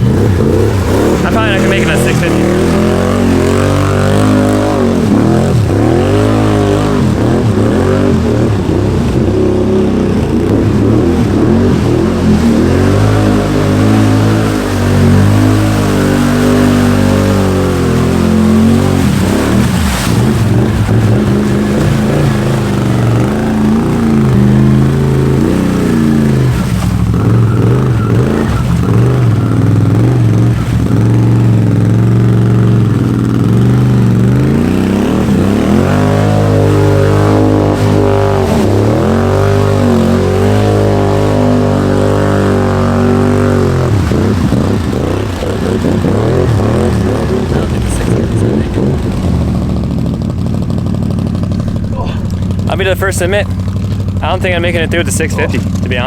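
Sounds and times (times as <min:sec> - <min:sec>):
engine revving hard: 0:00.0 - 0:53.4.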